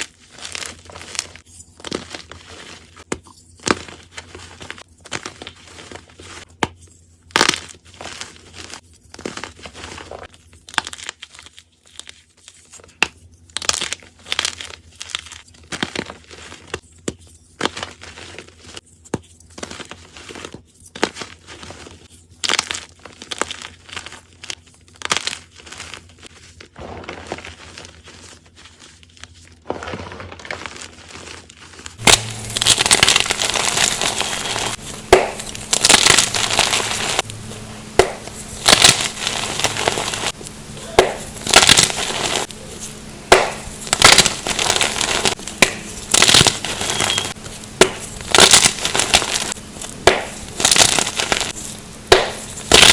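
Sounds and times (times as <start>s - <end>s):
chalk being crunched: 0.0s - 6.5s, 19.5s - 52.9s.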